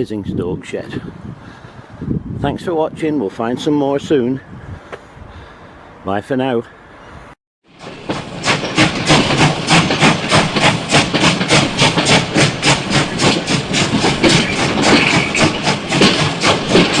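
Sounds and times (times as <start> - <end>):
steam hissing: 7.7 - 17.0
steam locomotive exhaust beats: 7.7 - 17.0.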